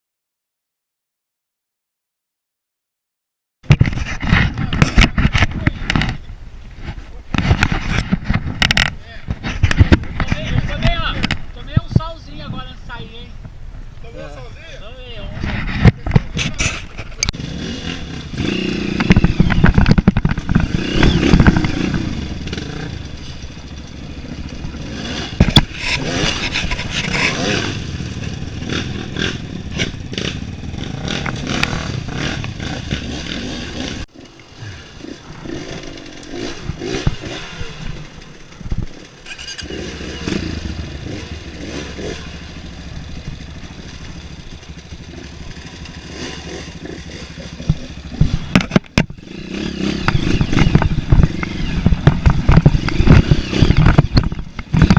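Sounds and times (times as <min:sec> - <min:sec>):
motorcycle engine revving: 0:14.9 - 0:54.9
clatter: 0:18.4 - 0:34.1, 0:35.4 - 0:54.9.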